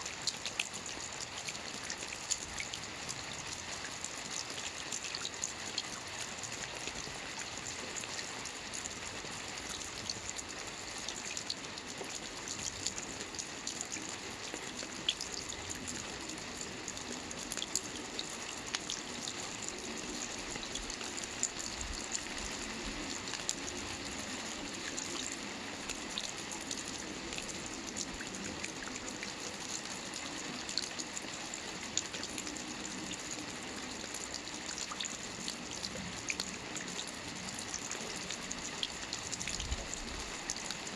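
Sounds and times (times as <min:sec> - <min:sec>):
rain falling on water: 0:00.0 - 0:40.9.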